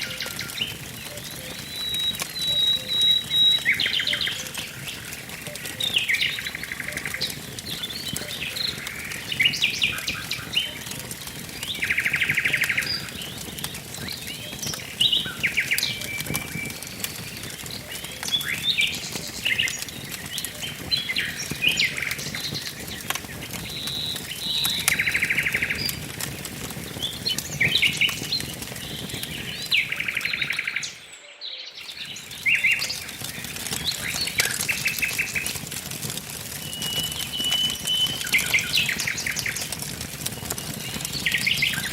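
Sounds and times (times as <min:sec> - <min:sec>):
wood fire crackling: 0:00.0 - 0:31.2, 0:31.8 - 0:41.9
songbirds chirping: 0:00.0 - 0:41.9.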